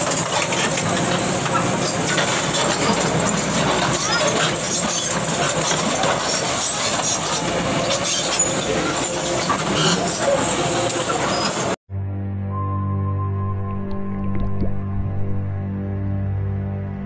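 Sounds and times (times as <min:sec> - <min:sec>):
busy outdoor din: 0:00.0 - 0:11.8
heavy equipment engine running: 0:00.0 - 0:11.8
faint voices: 0:07.4 - 0:11.8.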